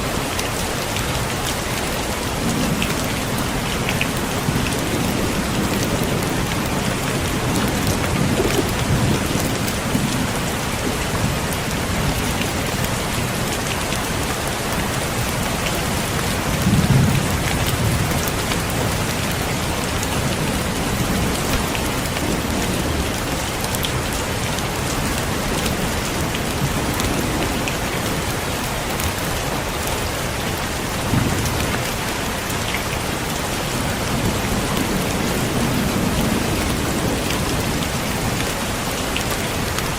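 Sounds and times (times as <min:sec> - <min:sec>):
heavy rain: 0:00.0 - 0:39.9
thunder rumbling: 0:02.3 - 0:13.5, 0:15.3 - 0:28.4.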